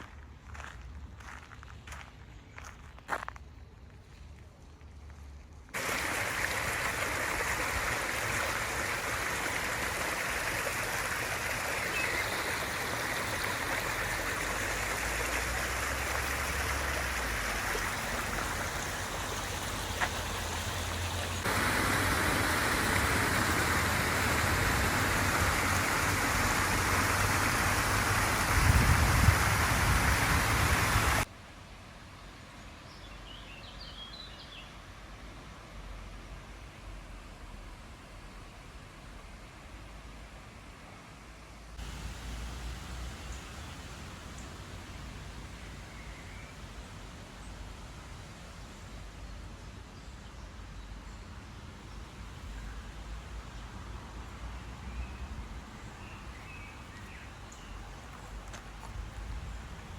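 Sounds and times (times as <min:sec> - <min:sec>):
faint hiss: 0:05.6 - 0:59.9
rushing water: 0:05.8 - 0:31.3, 0:41.8 - 0:49.8, 0:51.3 - 0:59.9.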